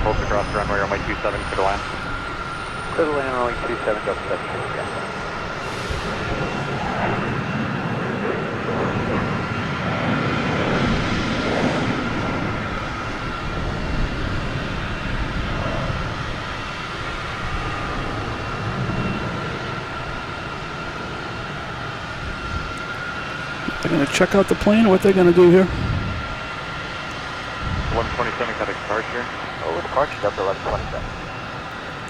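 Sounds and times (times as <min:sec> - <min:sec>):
jet engines rushing: 0:00.0 - 0:32.0.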